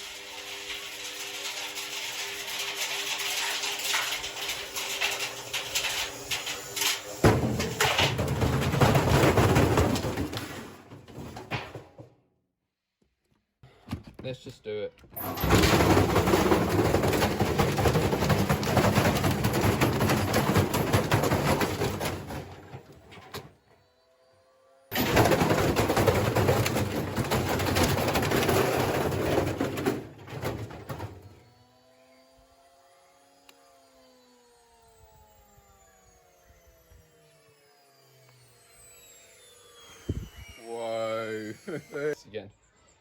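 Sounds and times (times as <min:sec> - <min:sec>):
washing machine rattling and banging: 0:00.2 - 0:12.2, 0:15.2 - 0:23.4, 0:24.9 - 0:31.4
faint motor whine: 0:22.7 - 0:25.0, 0:31.0 - 0:43.0.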